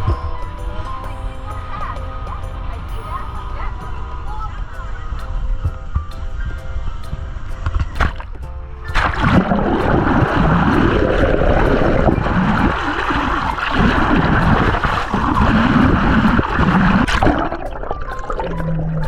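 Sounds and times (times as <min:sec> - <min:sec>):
water rushing and splashing: 0:07.7 - 0:19.0.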